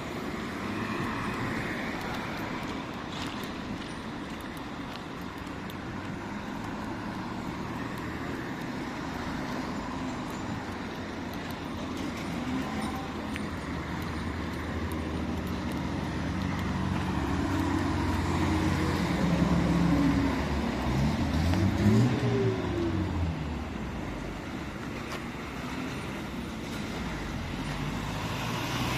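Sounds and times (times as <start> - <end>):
street traffic engines: 0.0 - 28.9
engine revving and passing: 14.2 - 23.7, 26.6 - 28.9.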